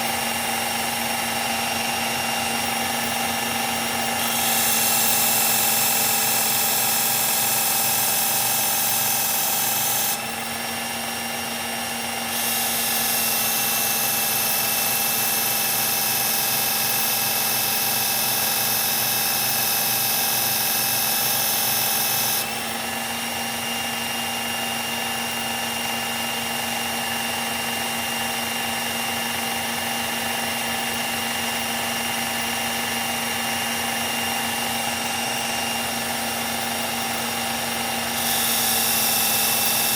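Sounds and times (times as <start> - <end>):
belt sharpener motor running: 0.0 - 39.9
belt grinding knife blade: 1.6 - 10.6, 33.8 - 39.9.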